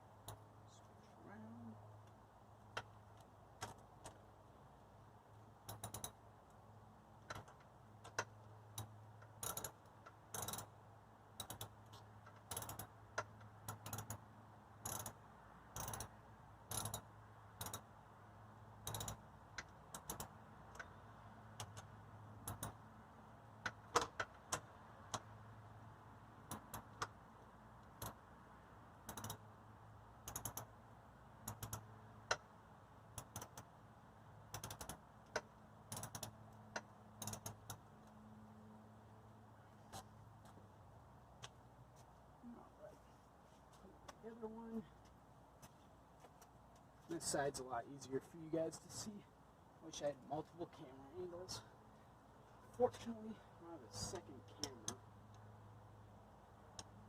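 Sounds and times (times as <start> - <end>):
low steady hum: 0.0 - 57.0
sharp mechanical clicks: 5.6 - 6.2, 7.2 - 10.7, 11.4 - 16.1, 16.7 - 17.9, 18.8 - 22.8, 26.4 - 27.2, 29.0 - 29.4, 30.2 - 30.7, 31.4 - 32.5, 33.1 - 33.7, 34.4 - 37.9.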